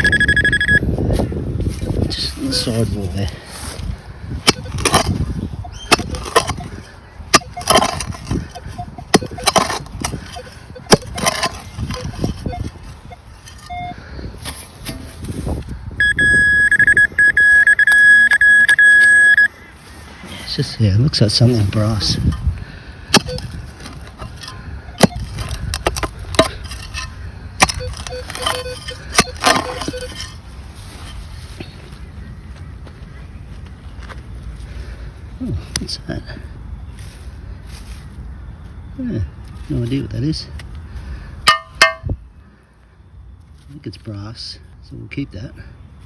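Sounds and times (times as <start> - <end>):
crunching scrape of soil: 1.2 - 13.8, 14.4 - 15.7, 19.6 - 22.6, 23.3 - 31.8
digging tool striking soil: 4.4 - 12.7, 14.4 - 15.5, 23.1 - 30.4, 41.5 - 42.2
faint tone: 16.0 - 19.6
sharp clicks or knocks: 41.5 - 42.1.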